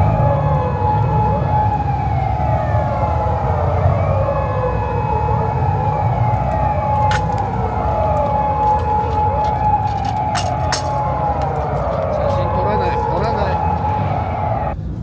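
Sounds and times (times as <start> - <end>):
sirens wailing: 0.0 - 14.8
low engine rumble: 0.0 - 15.0.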